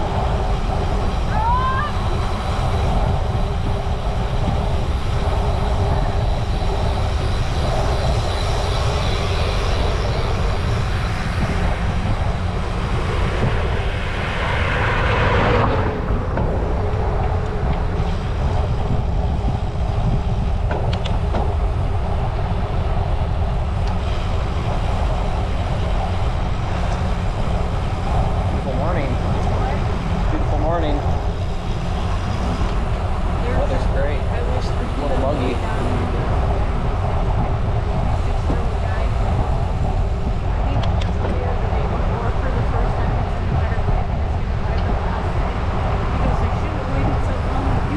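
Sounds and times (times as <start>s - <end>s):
tyres rumbling on road: 0.0s - 47.9s
wind buffeting microphone: 0.0s - 47.9s.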